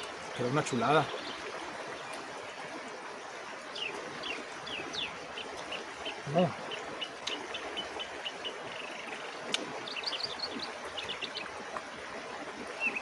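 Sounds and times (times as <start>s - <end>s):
small birds chirping: 0.0s - 2.8s, 3.6s - 11.6s, 12.7s - 13.0s.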